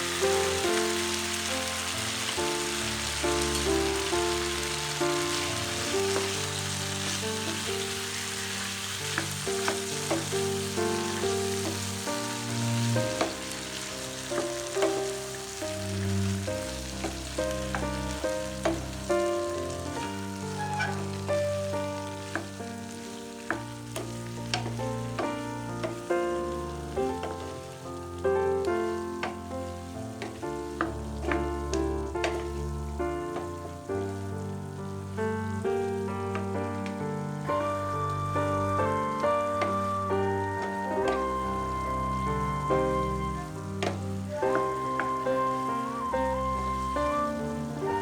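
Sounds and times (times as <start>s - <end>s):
background music: 0.0s - 48.0s
food sizzling in a frying pan: 0.0s - 48.0s
utensil clicking against pan: 7.0s - 12.2s, 13.0s - 13.6s, 14.2s - 15.8s, 16.9s - 21.4s, 23.4s - 26.1s, 28.9s - 29.5s, 30.2s - 32.7s.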